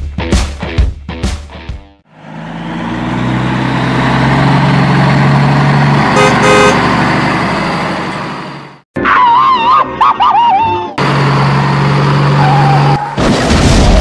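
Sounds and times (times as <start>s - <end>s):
car engine humming: 2.1s - 8.8s, 11.0s - 13.1s
car horn toots: 6.1s - 6.9s.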